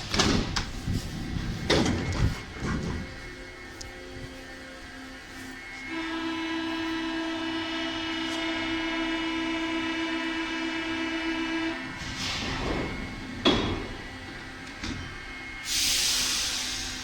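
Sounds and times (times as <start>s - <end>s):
train humming tone: 0.0s - 17.0s
air hisses: 15.6s - 17.0s.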